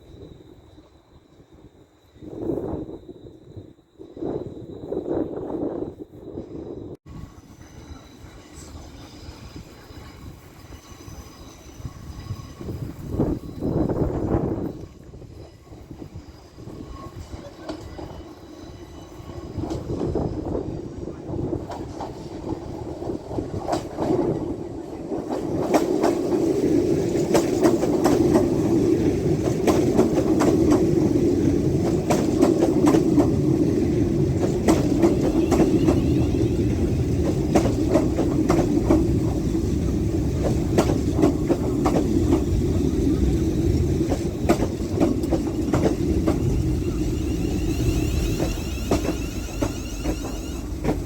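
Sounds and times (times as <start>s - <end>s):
train rumble: 0.0s - 51.0s
train wheels clicking over rail joints: 21.6s - 51.0s.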